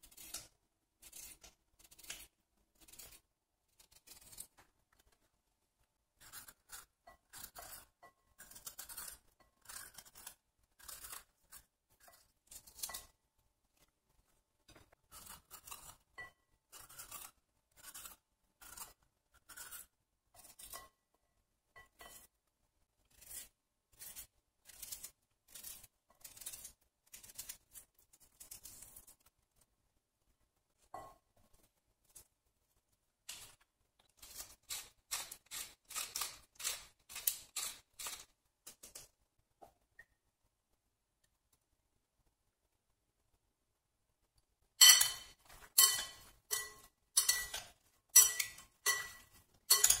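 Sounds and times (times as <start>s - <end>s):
knife slicing pepper: 0.0s - 4.7s, 6.2s - 13.2s, 15.1s - 21.0s, 23.1s - 29.2s, 34.2s - 39.1s
pepper mill grinding: 34.2s - 39.0s, 44.8s - 50.0s.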